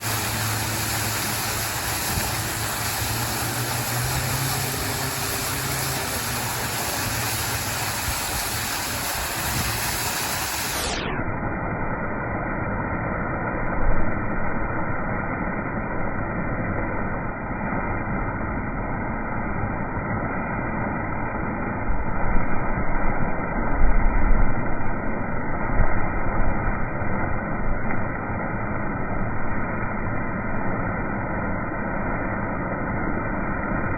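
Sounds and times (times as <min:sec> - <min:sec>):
heavy rain pouring: 0:00.0 - 0:11.2.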